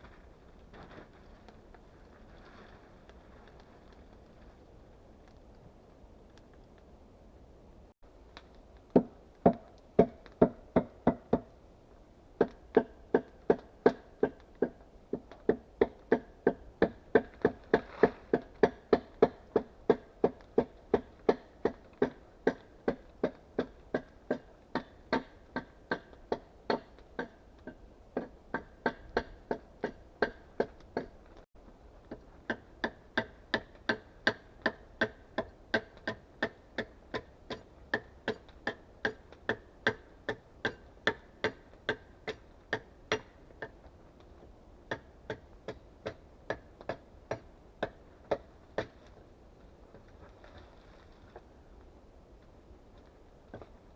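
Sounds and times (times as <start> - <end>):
hand tool striking wood: 9.0 - 11.5, 32.5 - 43.7.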